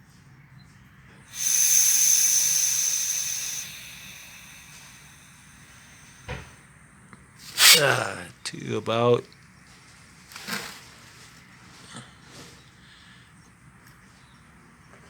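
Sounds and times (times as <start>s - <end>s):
compressed air hissing: 1.3s - 6.5s, 7.5s - 8.2s.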